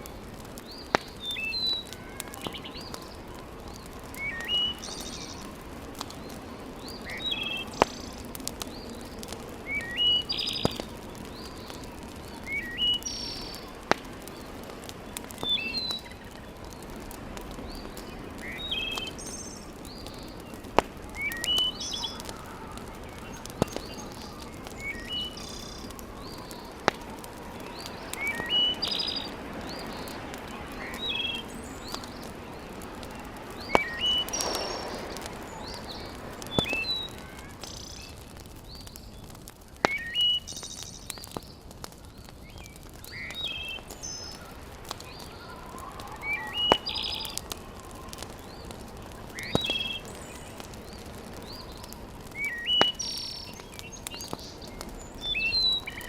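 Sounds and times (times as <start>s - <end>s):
wood fire popping: 0.0s - 56.0s
background hiss: 2.5s - 41.1s
bird chirping: 6.9s - 13.7s, 27.6s - 30.1s.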